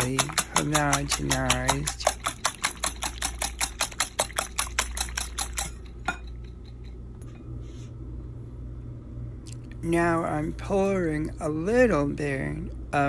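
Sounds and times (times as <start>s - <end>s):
utensil clinking against bowl: 0.0s - 7.0s
low steady hum: 0.0s - 13.0s.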